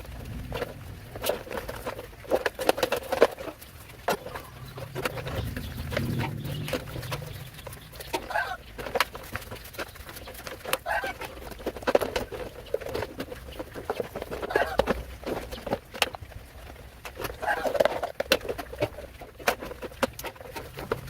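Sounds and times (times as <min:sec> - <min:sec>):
bird calling: 0:03.4 - 0:11.7, 0:13.5 - 0:15.7, 0:17.4 - 0:17.8.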